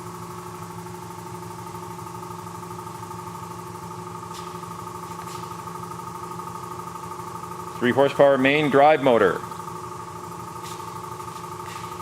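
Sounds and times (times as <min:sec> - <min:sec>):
bandsaw motor hum and whine: 0:00.0 - 0:12.0.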